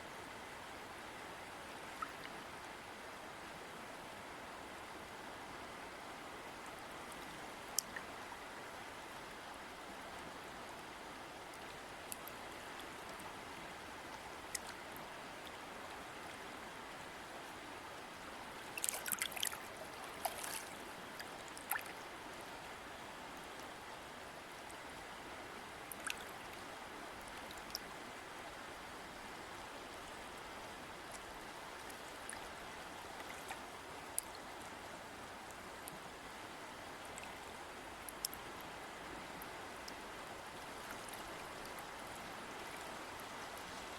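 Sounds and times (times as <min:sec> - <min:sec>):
river water flowing: 0:00.0 - 0:43.9.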